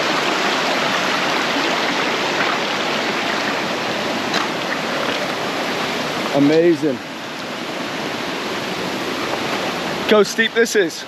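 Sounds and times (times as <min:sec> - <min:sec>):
waterfall stream rushing: 0:00.0 - 0:11.0.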